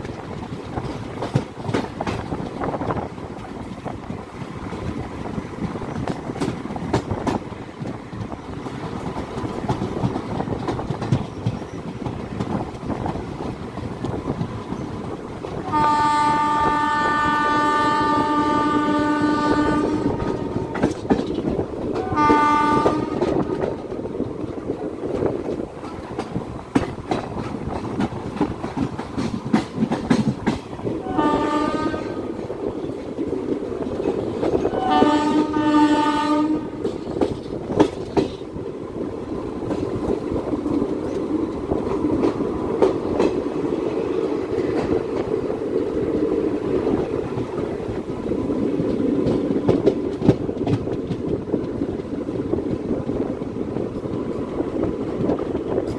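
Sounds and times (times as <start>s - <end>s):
moving train rumble: 0.0s - 55.9s
wheels clacking over rail joints: 0.0s - 55.9s
train horn blasts: 15.6s - 20.9s, 22.0s - 23.7s, 31.0s - 32.4s, 34.7s - 37.0s.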